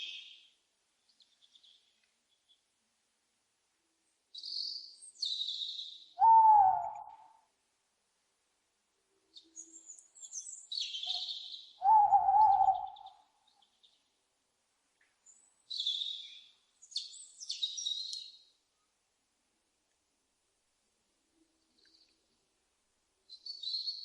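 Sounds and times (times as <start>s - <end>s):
owl screeching: 6.2s - 7.0s, 11.8s - 13.0s
owl hooting: 6.2s - 7.4s, 11.0s - 13.3s.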